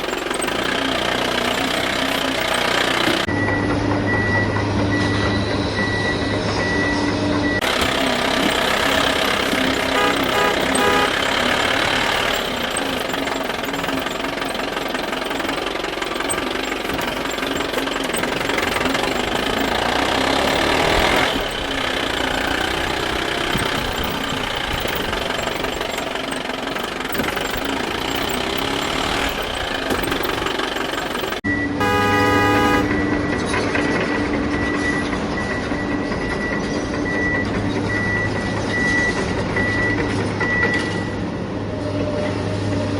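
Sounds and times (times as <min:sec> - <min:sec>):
dense steady vehicle noise: 0:00.0 - 0:42.9
high pulsing beep: 0:03.2 - 0:08.2, 0:31.5 - 0:41.2
short horn toot: 0:09.8 - 0:11.5, 0:31.8 - 0:33.1.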